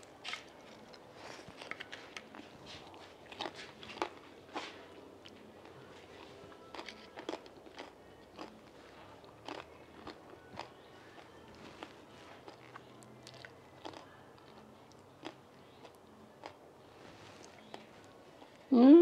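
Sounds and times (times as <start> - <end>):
soft chewing: 0.0 - 18.7.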